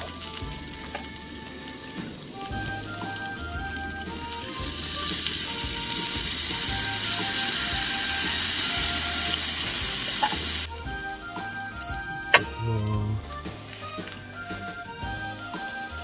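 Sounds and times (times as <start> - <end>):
background music: 0.0 - 16.0
food sizzling in a pan: 4.8 - 10.7.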